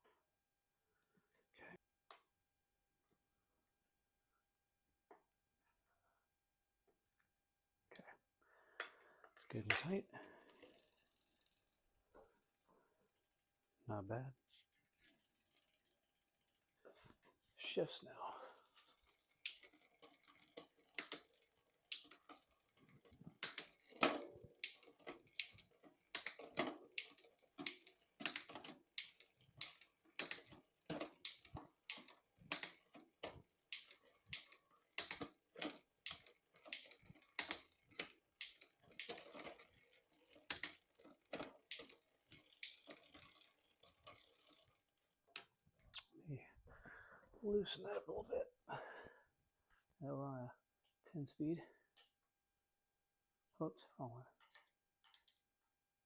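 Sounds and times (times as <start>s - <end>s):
bicycle chain clunks: 8.8s - 12.5s, 18.8s - 45.1s
bicycle gear shifting clicks: 19.0s - 44.8s.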